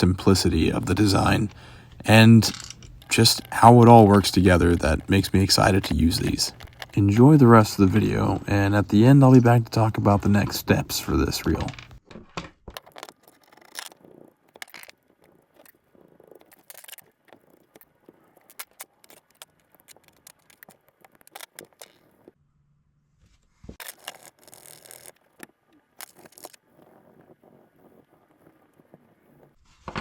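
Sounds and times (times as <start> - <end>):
small metal parts clinking: 1.3 - 3.6.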